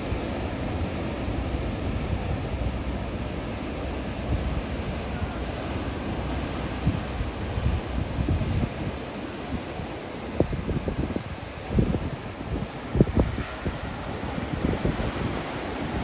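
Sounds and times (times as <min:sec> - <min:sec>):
ocean surf: 0:00.0 - 0:16.0
wind buffeting microphone: 0:00.0 - 0:16.0.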